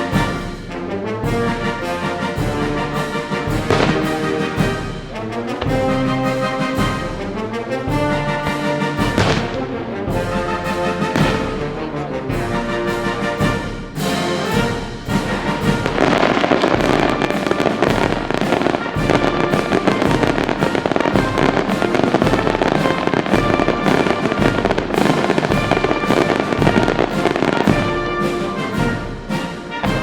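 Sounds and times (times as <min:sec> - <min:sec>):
orchestral music: 0:00.0 - 0:30.0
fireworks bangs and crackling: 0:02.2 - 0:05.0, 0:08.8 - 0:09.7, 0:11.0 - 0:11.6, 0:13.5 - 0:30.0.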